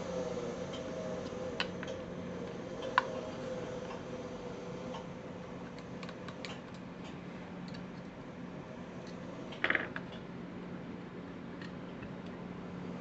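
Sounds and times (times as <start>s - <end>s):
motor humming: 0.0s - 6.9s.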